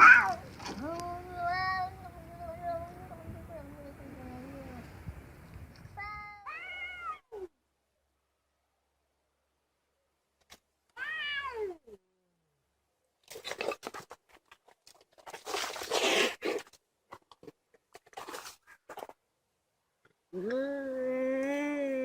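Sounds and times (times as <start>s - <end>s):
cat yowling: 0.0s - 0.4s
cats hissing and scuffling: 13.3s - 16.8s.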